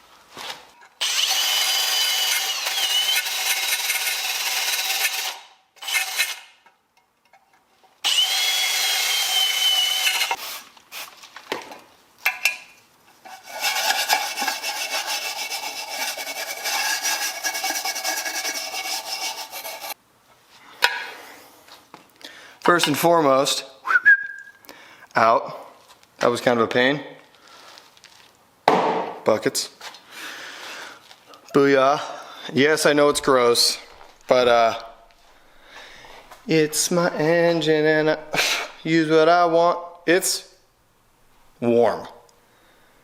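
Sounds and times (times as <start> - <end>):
power tool motor whine: 1.0 - 6.5, 8.0 - 10.4.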